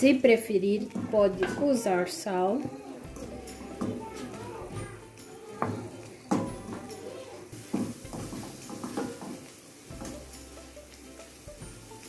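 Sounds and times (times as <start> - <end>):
light sizzle: 0.0 - 12.0
wooden spoon scraping pan: 0.7 - 2.0.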